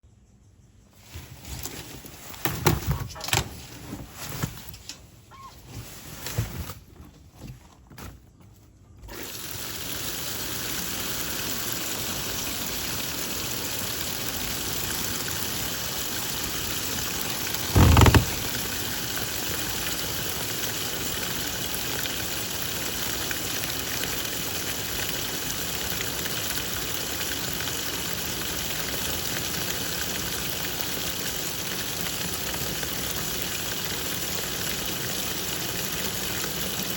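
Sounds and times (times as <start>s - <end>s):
washing machine knocks and clicks: 2.4s - 3.5s, 17.5s - 18.7s
water running into tub: 9.1s - 36.9s.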